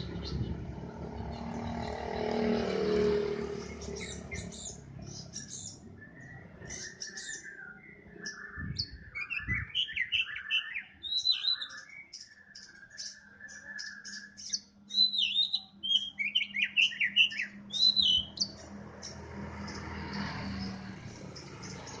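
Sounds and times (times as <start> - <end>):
passing vehicle: 0.0 - 7.4, 17.2 - 22.0
bird chirping and singing: 0.0 - 22.0.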